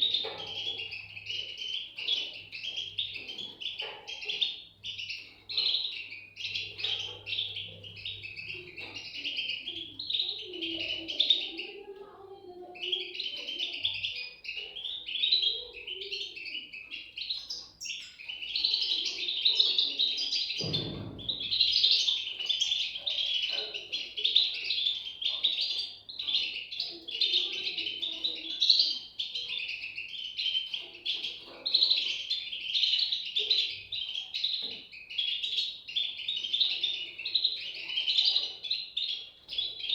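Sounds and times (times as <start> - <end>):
bird chicks chirping: 0.0 - 39.9
low thump: 20.6 - 21.6.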